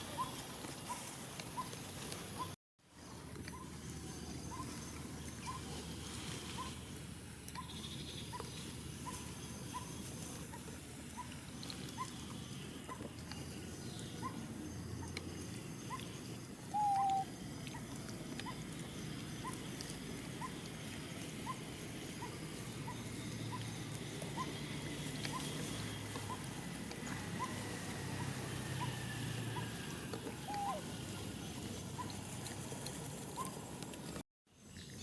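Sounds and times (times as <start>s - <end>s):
animal call: 0.0s - 1.8s, 4.4s - 6.8s, 16.7s - 20.7s, 21.4s - 32.2s
faint rising chirp: 11.2s - 17.3s.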